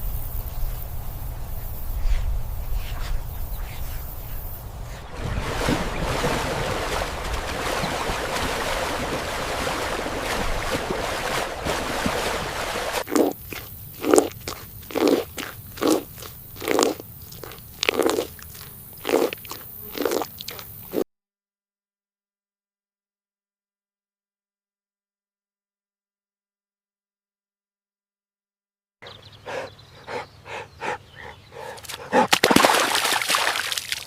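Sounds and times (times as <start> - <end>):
animal chewing and crunching food: 10.3 - 21.0.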